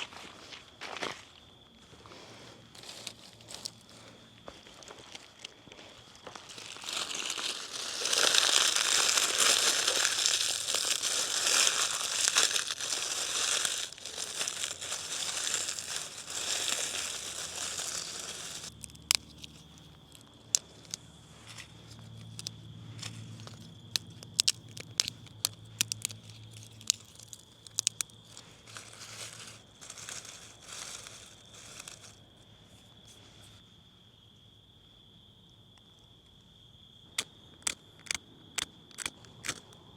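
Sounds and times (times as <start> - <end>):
high insect drone: 0.0 - 39.9
crinkling and rustling bag: 4.8 - 32.3.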